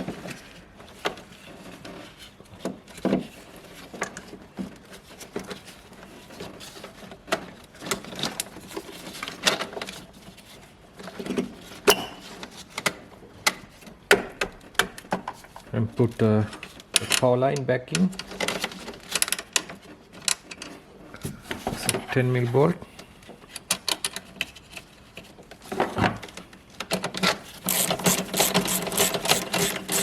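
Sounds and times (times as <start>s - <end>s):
hand tools and parts clicking: 27.6s - 30.0s.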